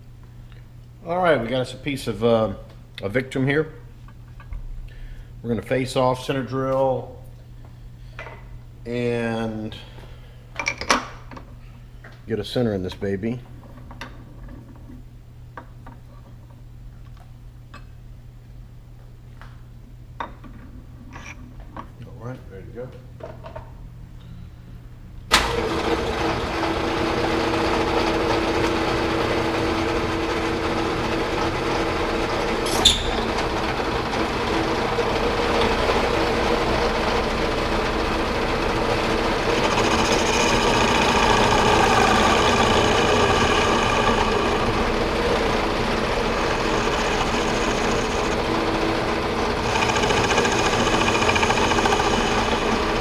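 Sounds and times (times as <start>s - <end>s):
metal lathe running: 25.3s - 53.0s.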